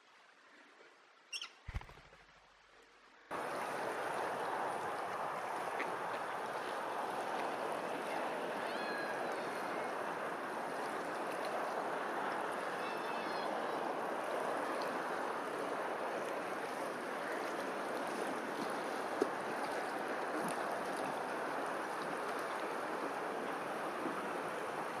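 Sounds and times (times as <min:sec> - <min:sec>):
running water: 0:00.0 - 0:25.0
bird chirp: 0:01.3 - 0:02.0.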